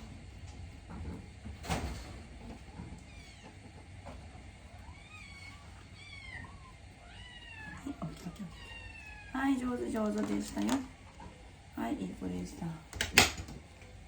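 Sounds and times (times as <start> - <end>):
kittens mewing: 4.8 - 9.9.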